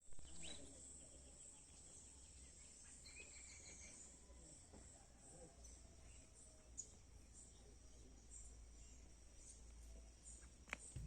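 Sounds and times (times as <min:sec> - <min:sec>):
crickets droning: 0:00.0 - 0:11.0
faint bird chirps: 0:00.0 - 0:11.0.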